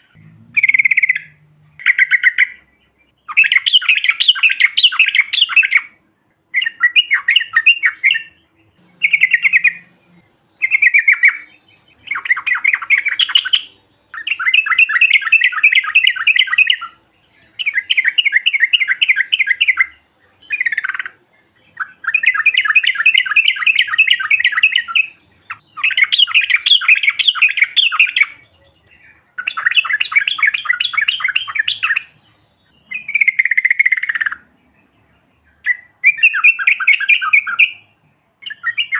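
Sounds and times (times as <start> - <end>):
bulbul singing bubbly chatter: 8.8 - 16.9.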